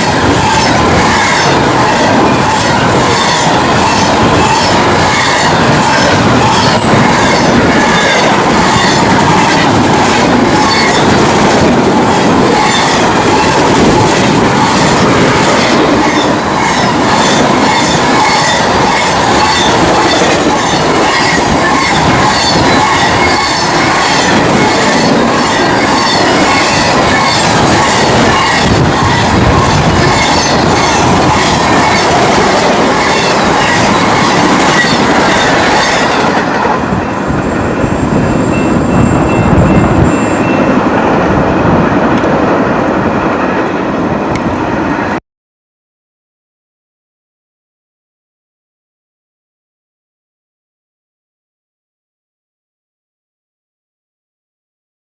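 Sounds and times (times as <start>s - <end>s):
freight train rushing past: 0.0s - 45.2s.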